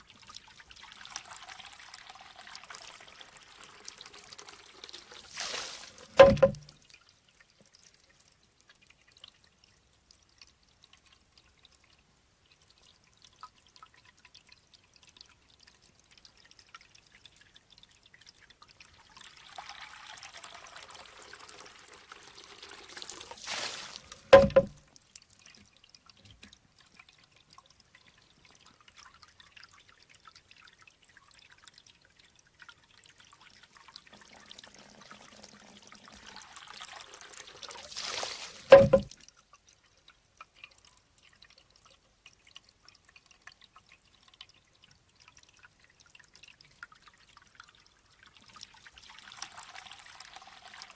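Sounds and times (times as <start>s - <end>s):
water pouring: 0.0s - 50.9s
water trickling into bamboo tube: 0.0s - 50.9s
bamboo tube clacking on stone: 6.1s - 6.7s, 24.1s - 24.8s, 38.7s - 39.1s.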